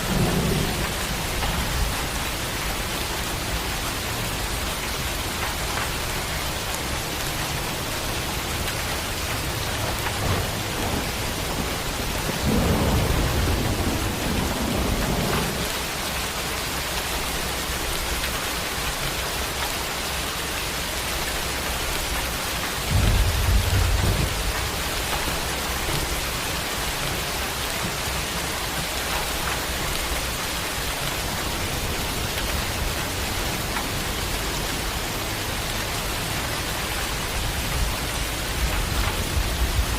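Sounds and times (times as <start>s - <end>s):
thunder rolling: 0.0s - 3.4s, 9.4s - 15.8s, 22.8s - 26.4s
heavy rain: 0.0s - 39.9s.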